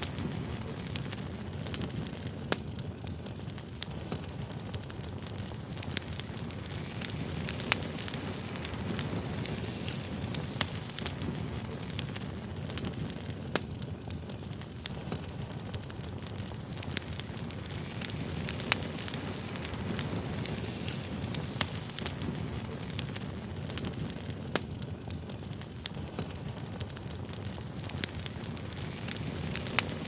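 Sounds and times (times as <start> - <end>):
firewood crackling and popping: 0.0 - 30.0
low rumble of flame: 0.0 - 30.0.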